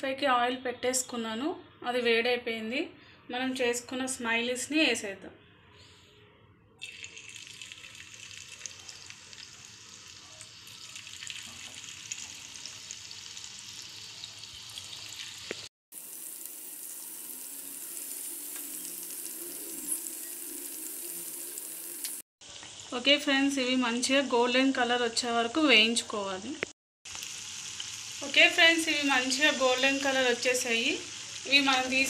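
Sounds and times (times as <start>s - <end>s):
food sizzling in hot oil: 6.8s - 32.0s.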